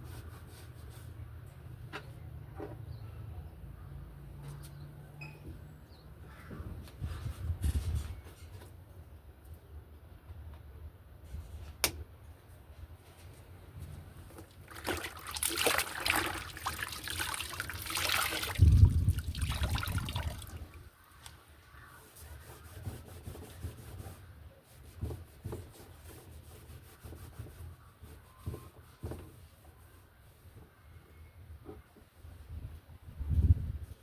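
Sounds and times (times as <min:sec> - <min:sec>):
water running and splashing: 0:14.5 - 0:20.8.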